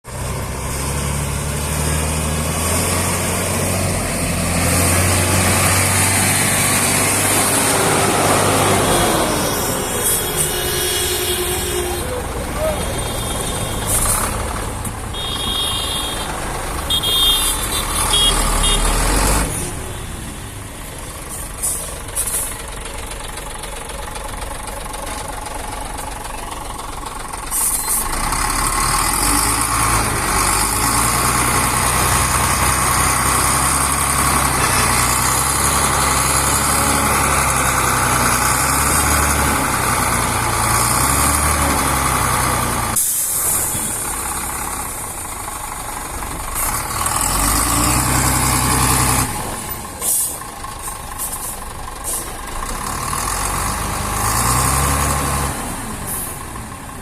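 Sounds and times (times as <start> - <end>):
heavy truck engine running: 0.1 - 57.0.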